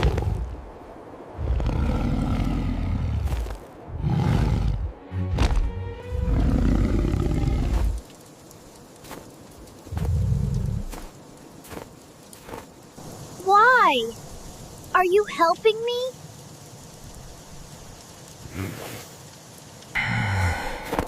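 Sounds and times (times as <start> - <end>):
large animal roaring: 1.4 - 4.9, 6.1 - 8.0
music: 4.8 - 6.6.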